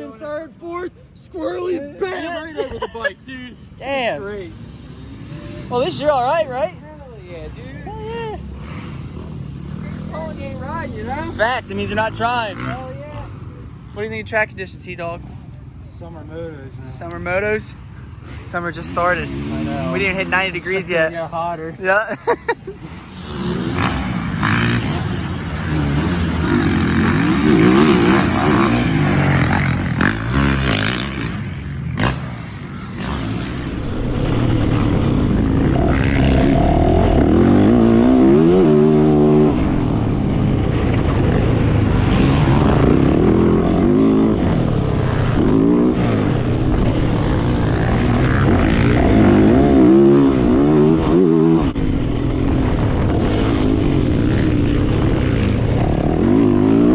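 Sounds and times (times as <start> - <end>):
dirt bike engine revving: 8.4 - 13.5, 18.2 - 21.1, 23.1 - 56.9.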